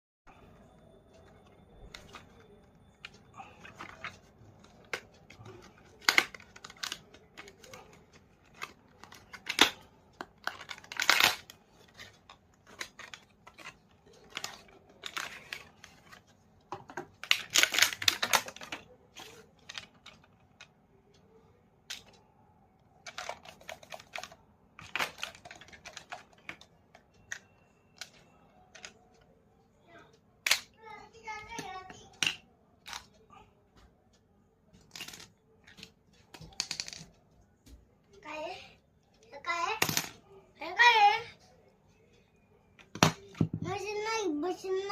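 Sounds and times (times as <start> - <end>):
clicks and taps of parts: 21.8 - 22.2, 30.4 - 30.8.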